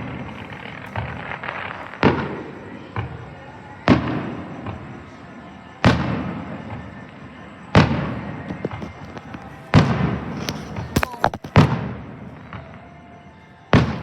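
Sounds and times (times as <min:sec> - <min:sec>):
firework shells exploding: 0:00.0 - 0:05.2, 0:05.8 - 0:12.7
firework pop: 0:10.4 - 0:11.7.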